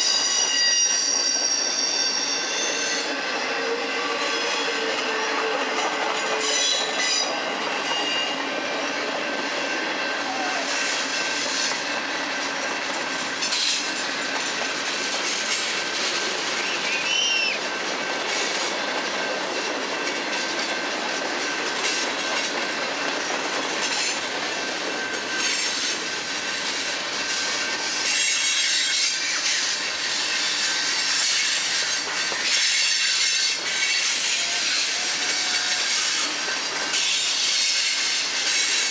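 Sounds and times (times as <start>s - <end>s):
thin wheel squeals: 0.0s - 3.1s
wheel-on-rail noise: 0.0s - 38.9s.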